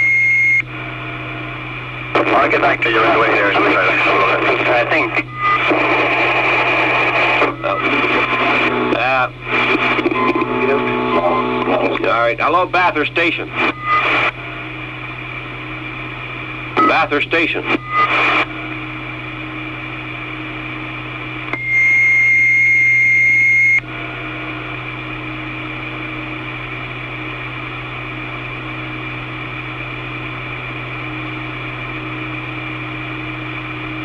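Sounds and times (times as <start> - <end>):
loud steady beep tone: 0.0 - 0.7, 16.7 - 18.8, 21.6 - 24.4
low hum: 0.0 - 34.0
radio static hiss: 0.7 - 22.1.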